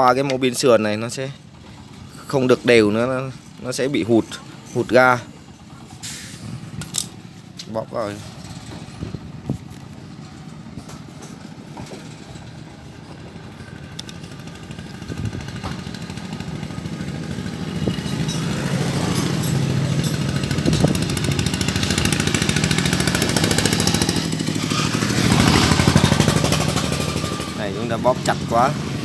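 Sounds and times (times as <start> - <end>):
motorcycle engine running: 8.2 - 29.0.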